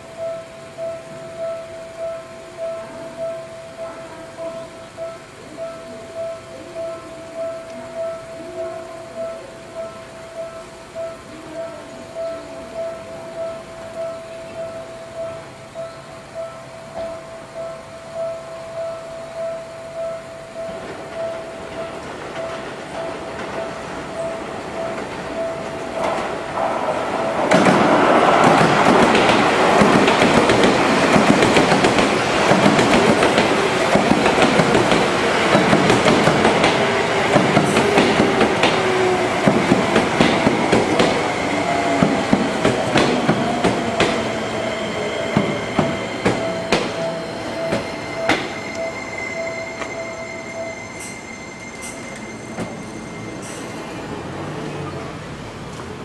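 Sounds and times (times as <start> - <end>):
wheels clacking over rail joints: 20.7 - 50.0
brake squeal: 44.5 - 55.5.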